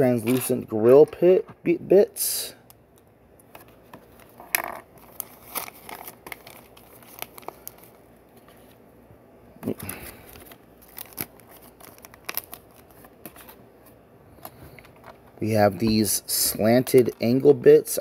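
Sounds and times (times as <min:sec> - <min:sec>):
plastic bag crinkling: 0:04.2 - 0:08.1, 0:09.7 - 0:13.6.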